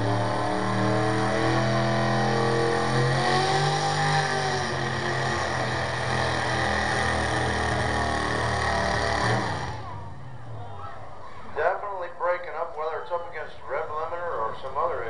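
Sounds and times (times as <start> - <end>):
truck engine under load: 0.0 - 10.8.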